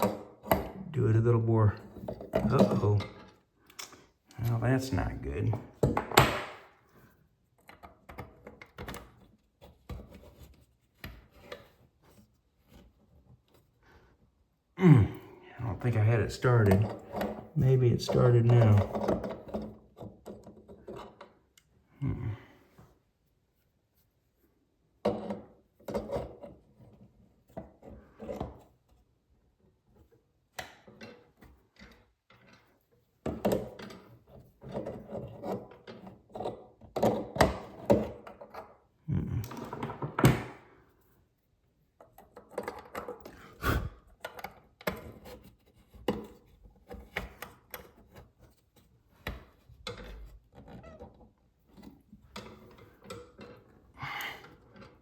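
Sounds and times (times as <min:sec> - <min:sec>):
hand tools knocking and scraping: 0:00.0 - 0:03.4, 0:15.8 - 0:21.4, 0:30.8 - 0:38.8.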